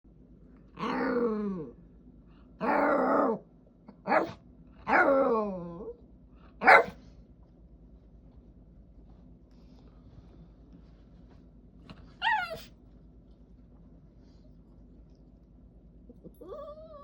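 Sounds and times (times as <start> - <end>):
dog barking: 4.0 - 5.1, 6.6 - 7.0
dog whining and grumbling: 12.2 - 12.7, 16.1 - 17.0.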